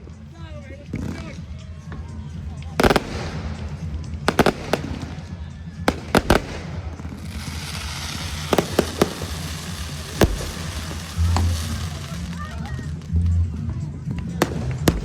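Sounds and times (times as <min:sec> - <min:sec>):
music playing low: 0:00.0 - 0:15.0
fireworks bursting bangs: 0:02.6 - 0:13.3, 0:14.2 - 0:15.0
crackling stars hiss: 0:07.3 - 0:13.2.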